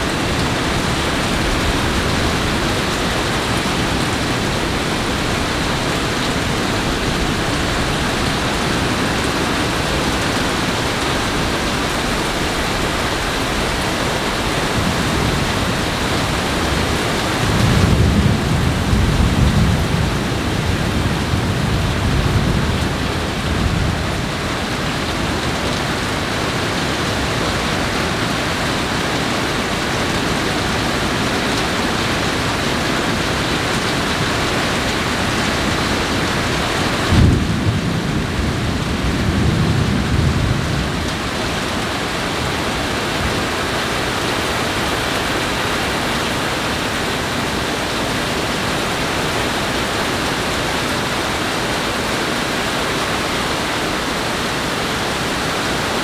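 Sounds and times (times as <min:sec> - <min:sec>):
low thunder rumbling: 0:00.0 - 0:28.1, 0:34.8 - 0:43.4
steady rain falling: 0:00.0 - 0:56.0.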